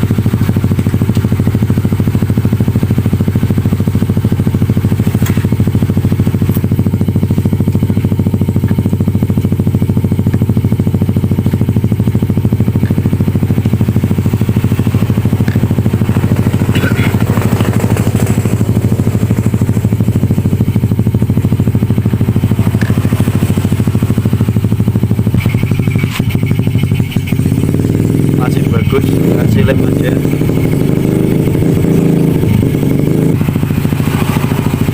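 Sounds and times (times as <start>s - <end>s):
small engine running: 0.0s - 34.9s.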